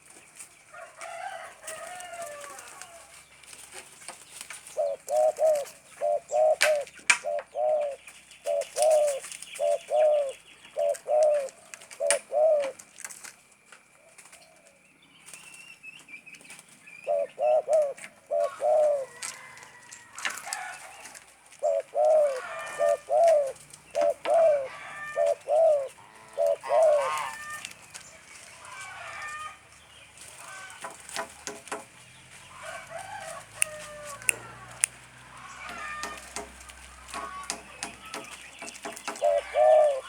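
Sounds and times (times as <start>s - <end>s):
dove cooing with stutters: 4.7s - 12.8s, 17.0s - 19.3s, 21.6s - 27.6s, 39.0s - 40.0s.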